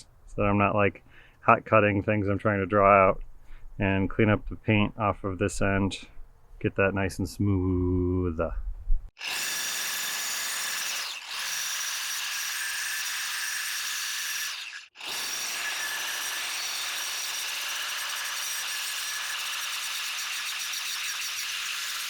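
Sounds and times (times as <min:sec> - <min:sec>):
angle grinder grinding steel: 0:09.2 - 0:22.0.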